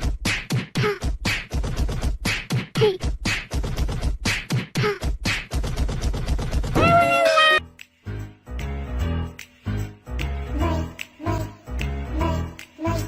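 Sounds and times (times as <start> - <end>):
beatbox percussive hits: 0.0 - 7.2.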